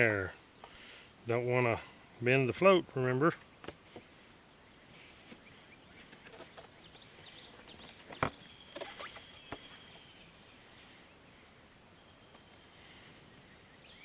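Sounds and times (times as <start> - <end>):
bird chirps and trill: 4.8 - 10.8.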